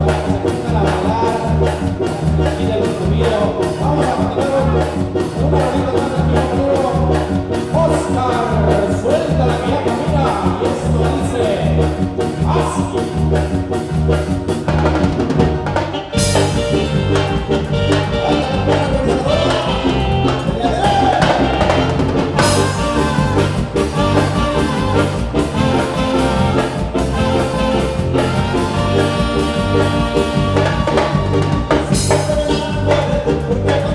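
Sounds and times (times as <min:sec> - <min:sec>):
dance band playing: 0:00.0 - 0:33.9
cymbals: 0:16.2 - 0:32.8.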